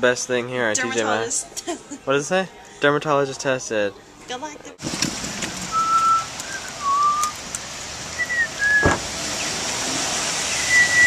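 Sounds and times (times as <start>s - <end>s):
heavy rain on pavement: 4.8s - 11.0s
person whistling: 5.7s - 7.4s, 8.2s - 9.0s, 10.6s - 11.0s
knock: 8.8s - 9.1s.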